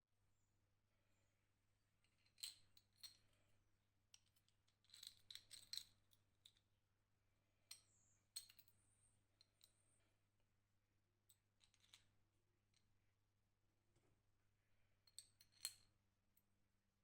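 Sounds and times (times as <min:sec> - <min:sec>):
light metallic clicks of small parts: 0:08.4 - 0:08.8.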